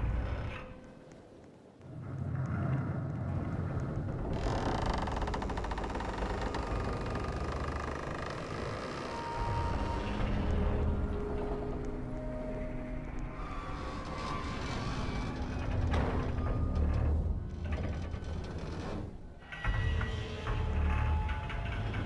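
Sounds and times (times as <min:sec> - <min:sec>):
low rumble: 0:01.9 - 0:21.0
rasping creaking: 0:04.1 - 0:11.8.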